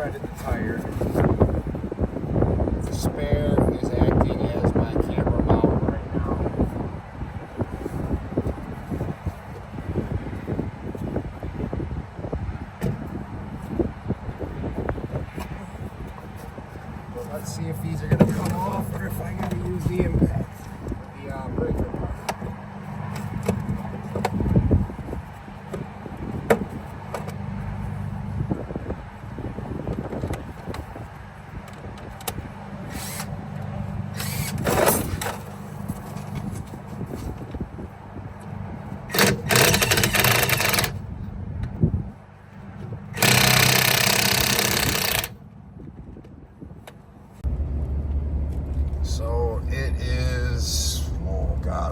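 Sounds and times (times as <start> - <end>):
steady low hum: 32.8 - 51.9
impact gun loosening lug nuts: 32.9 - 33.4, 34.2 - 35.6, 39.1 - 41.0, 43.2 - 45.3.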